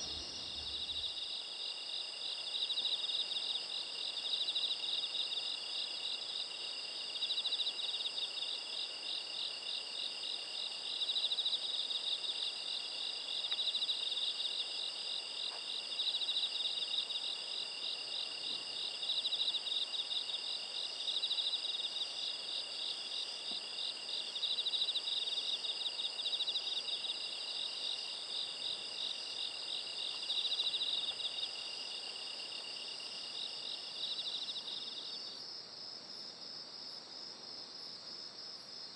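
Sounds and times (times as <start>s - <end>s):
crickets trilling: 0.0s - 7.7s.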